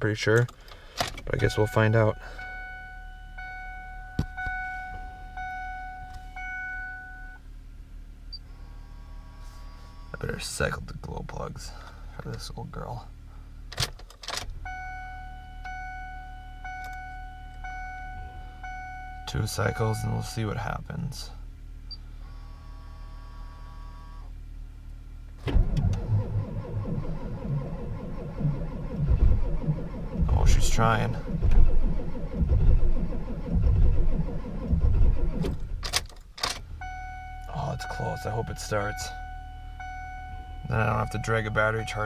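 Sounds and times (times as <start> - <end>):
diesel engine cranking: 0.0 - 7.4, 25.3 - 42.0
low steady hum: 0.0 - 42.0
dashboard warning chime: 1.3 - 7.4, 14.6 - 20.6, 36.8 - 42.0.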